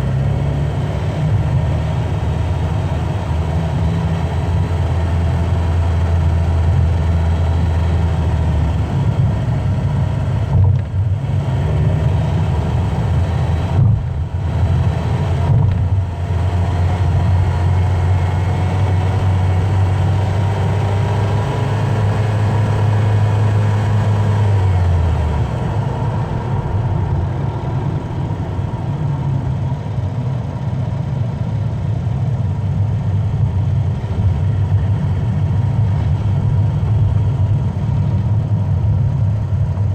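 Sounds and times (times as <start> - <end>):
car engine: 0.0 - 39.9
road noise: 0.0 - 39.9
low rumble: 24.5 - 39.9.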